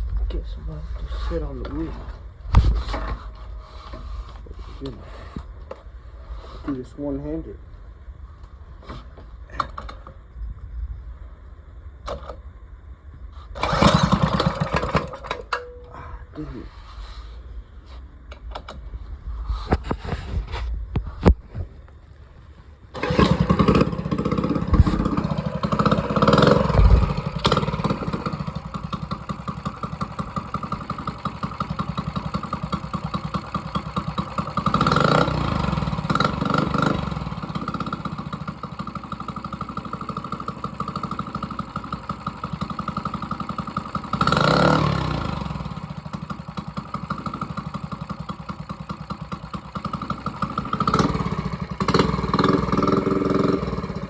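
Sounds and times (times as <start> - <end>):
mini bike engine running: 13.6 - 15.6, 23.0 - 54.0.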